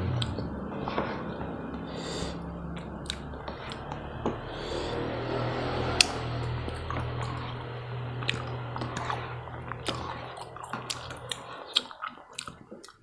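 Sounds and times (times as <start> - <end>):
low steady hum: 0.0 - 13.0
wet chewing and mouth smacks: 2.8 - 3.9, 8.2 - 13.0.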